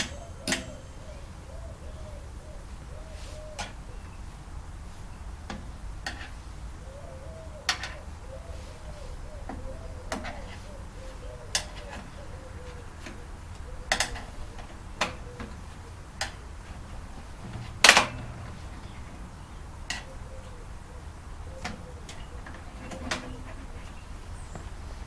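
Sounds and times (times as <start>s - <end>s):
clicks and knocks of tools: 0.0s - 0.7s, 7.7s - 8.0s, 11.5s - 12.1s, 13.0s - 15.6s, 16.2s - 16.4s, 21.6s - 23.9s.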